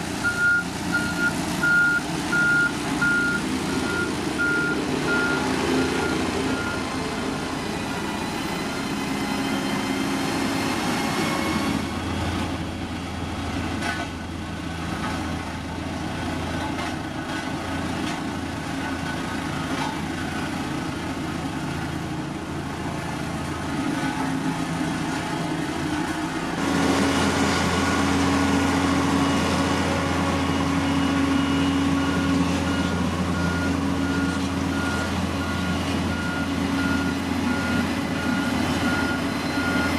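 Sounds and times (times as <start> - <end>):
diesel engine running: 0.0 - 39.9
reversing alarm beeping: 0.2 - 6.9, 30.3 - 39.9.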